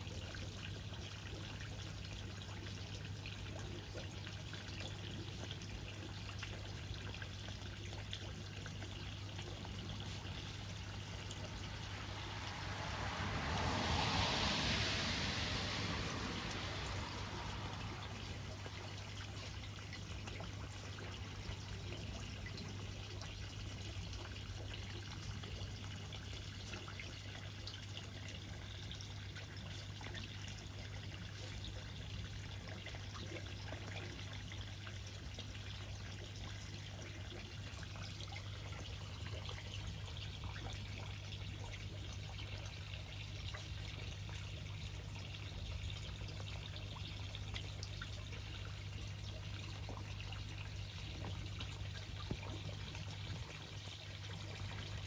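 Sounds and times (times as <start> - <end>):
water dripping: 0.0 - 55.0
water trickling and splashing: 0.0 - 55.0
low hum: 8.8 - 21.6.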